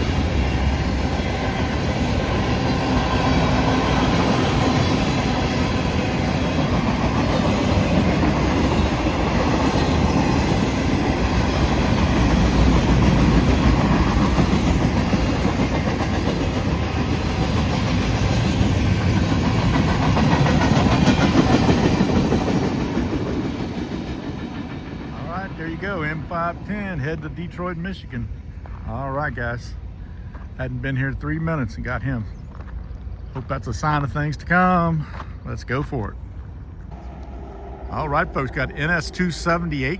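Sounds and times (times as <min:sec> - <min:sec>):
freight train wheels clacking on rails: 0:00.0 - 0:27.6.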